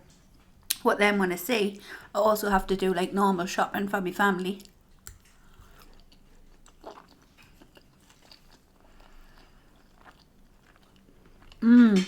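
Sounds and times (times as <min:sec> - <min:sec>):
faint chewing with mouth clicks: 0:04.4 - 0:12.0.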